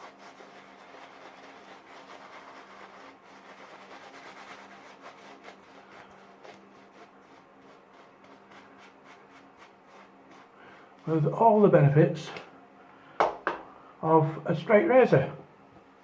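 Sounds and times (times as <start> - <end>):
faint rubbing and handling: 0.0 - 11.7
steady low hum: 0.0 - 16.0.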